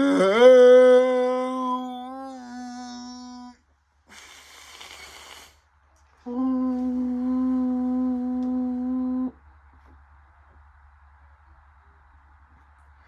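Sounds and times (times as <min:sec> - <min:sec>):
person humming held notes: 0:06.2 - 0:09.4.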